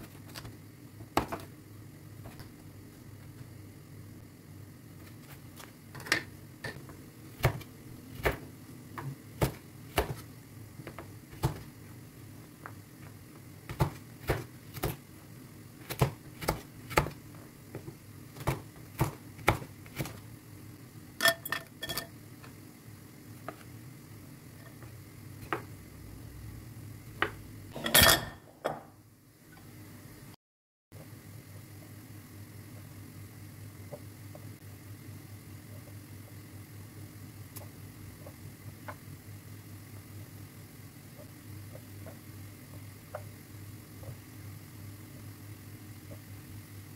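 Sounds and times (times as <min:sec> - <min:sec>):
dishes and cutlery clinking: 0:21.2 - 0:22.1, 0:27.8 - 0:28.8.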